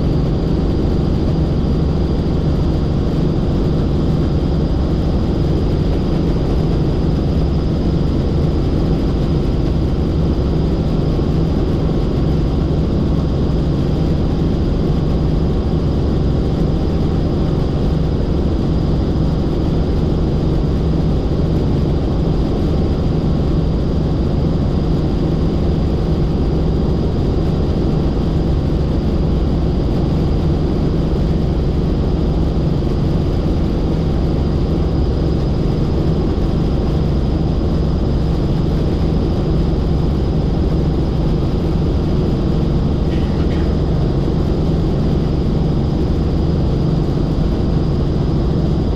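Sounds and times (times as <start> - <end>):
helicopter rotor and engine: 0.0 - 48.9
high-pitched whine: 19.9 - 48.9.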